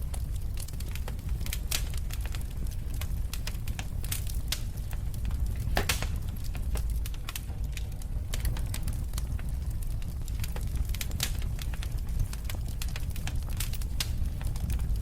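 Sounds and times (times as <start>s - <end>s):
fire crackling and popping: 0.0s - 15.0s
fire flames rumbling: 0.0s - 15.0s.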